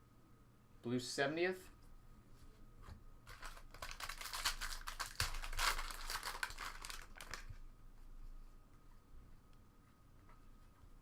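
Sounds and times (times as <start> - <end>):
plastic wrapper crinkling: 3.3 - 7.6.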